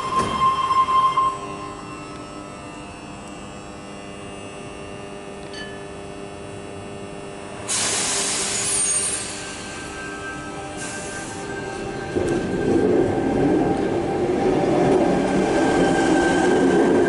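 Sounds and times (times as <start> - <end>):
loud hiss with high squeals: 7.7 - 12.2.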